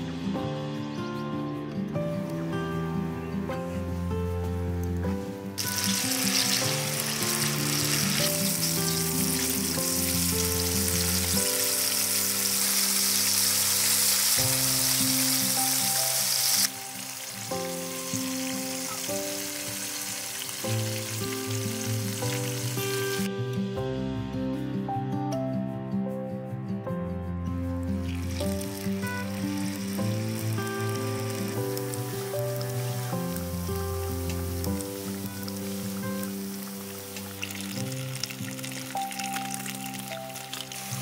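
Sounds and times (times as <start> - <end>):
gentle background music: 0.0 - 41.0
food sizzling in hot oil: 5.6 - 23.3, 28.0 - 41.0.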